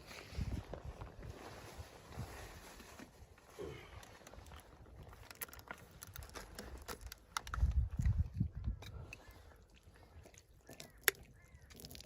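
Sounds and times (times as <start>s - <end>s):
light clicks and crackles: 3.9s - 9.4s.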